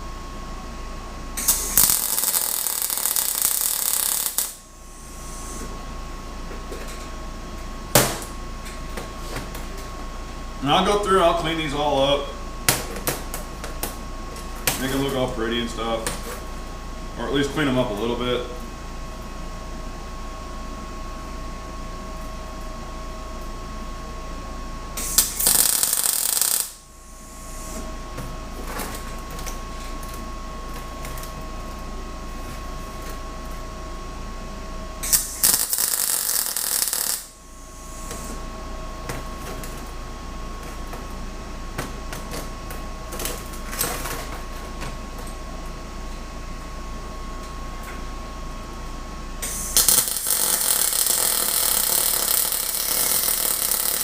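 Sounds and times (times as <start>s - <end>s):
steady shop hum: 0.0s - 54.0s
welding crackling: 1.4s - 4.6s, 25.0s - 26.8s, 35.1s - 37.4s, 49.8s - 54.0s.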